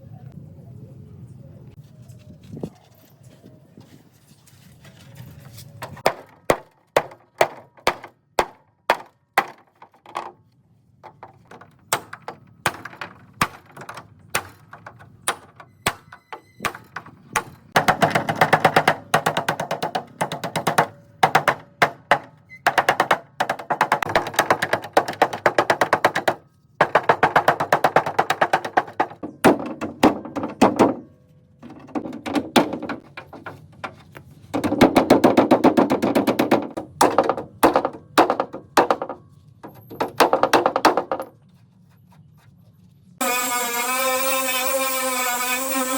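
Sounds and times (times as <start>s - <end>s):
hammer striking car body metal: 6.0s - 9.8s, 11.1s - 31.1s, 31.8s - 33.1s, 34.6s - 41.2s.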